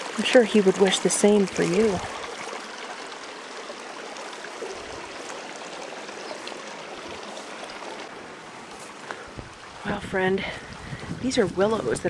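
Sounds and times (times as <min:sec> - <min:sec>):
stream flowing: 0:00.0 - 0:12.0.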